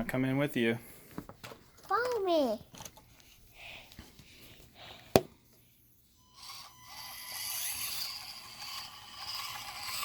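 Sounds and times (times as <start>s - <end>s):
small electric motor whining: 6.1s - 10.0s.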